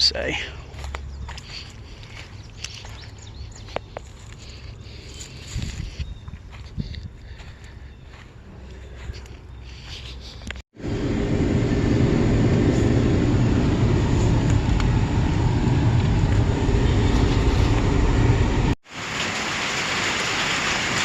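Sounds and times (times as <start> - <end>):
loud rumbling hiss: 10.8 - 21.0
steady rain hiss: 18.9 - 21.0.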